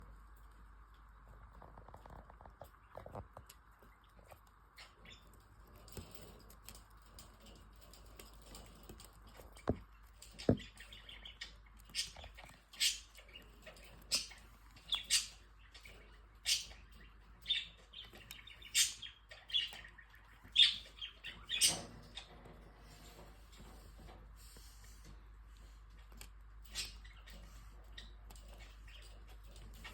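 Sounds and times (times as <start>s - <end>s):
bird chirping: 9.6s - 23.8s, 26.6s - 29.9s.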